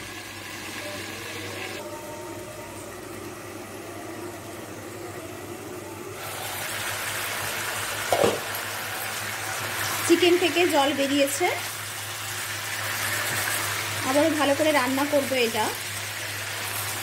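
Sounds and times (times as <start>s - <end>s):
chicken sizzling in a pan: 0.0s - 1.8s, 6.2s - 17.0s.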